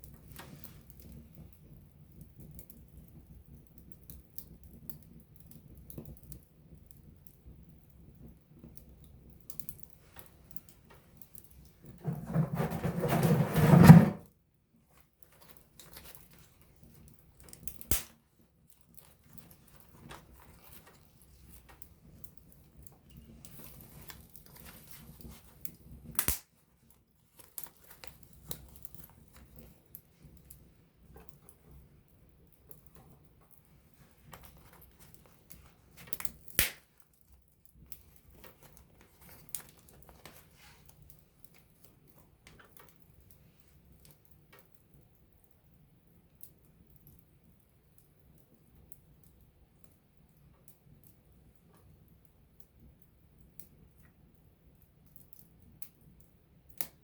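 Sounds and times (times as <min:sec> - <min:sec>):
campfire crackling and popping: 0:15.6 - 0:20.9, 0:21.5 - 0:26.6, 0:34.3 - 0:38.8.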